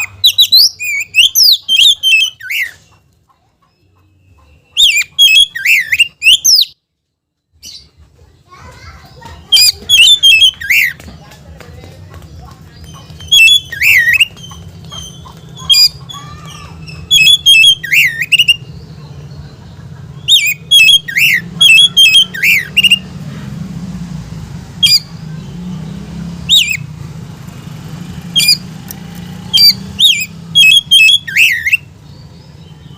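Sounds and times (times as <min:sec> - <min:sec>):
magpie-robin calling harshly: 0:00.0 - 0:02.8, 0:04.8 - 0:06.8, 0:09.5 - 0:11.0, 0:12.8 - 0:18.7, 0:20.2 - 0:23.1, 0:24.8 - 0:25.5, 0:26.5 - 0:26.9, 0:28.3 - 0:28.8, 0:29.4 - 0:31.9.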